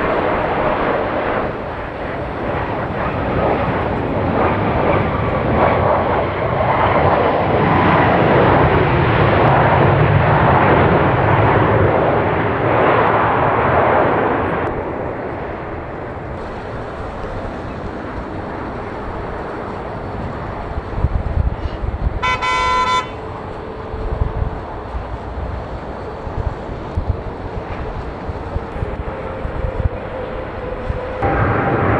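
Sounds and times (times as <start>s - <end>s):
jet engines roaring: 0.0s - 31.9s
wind on microphone: 0.0s - 31.9s
short horn toot: 21.6s - 23.4s.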